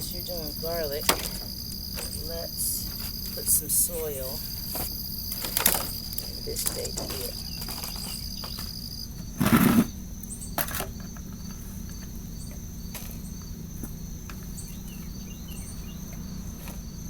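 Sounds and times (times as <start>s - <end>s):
crickets trilling: 0.0s - 17.0s
small birds chirping: 0.0s - 17.0s.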